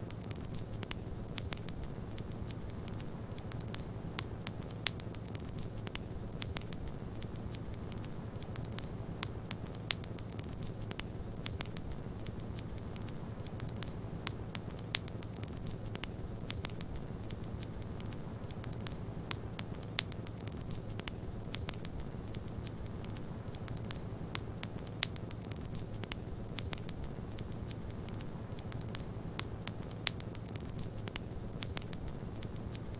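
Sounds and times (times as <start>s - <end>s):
wood fire crackling and popping: 0.0s - 32.9s.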